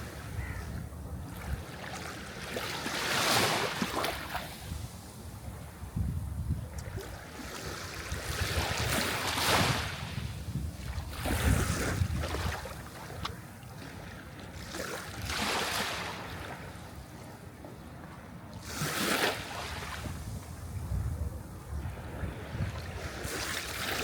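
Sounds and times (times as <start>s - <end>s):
sea waves breaking: 1.2s - 5.2s, 6.9s - 17.0s, 18.2s - 20.6s, 21.8s - 24.0s.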